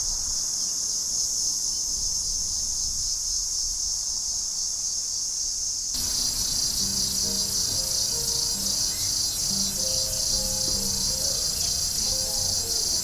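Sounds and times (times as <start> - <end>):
cicada buzzing: 6.0 - 13.0.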